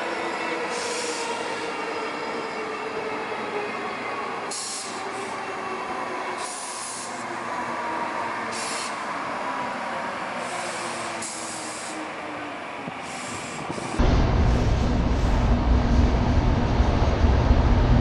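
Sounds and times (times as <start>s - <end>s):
train wheels rumbling on rail: 12.8s - 18.0s.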